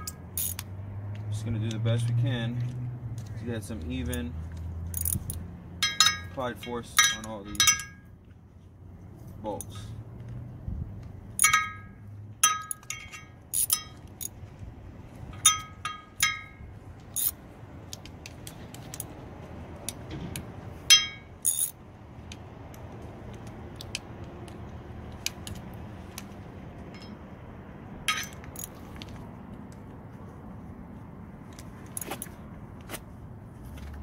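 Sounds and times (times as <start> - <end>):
steel tools clinking on metal: 4.9 - 8.1, 11.4 - 14.4, 15.4 - 17.4, 20.9 - 21.8, 28.1 - 28.8.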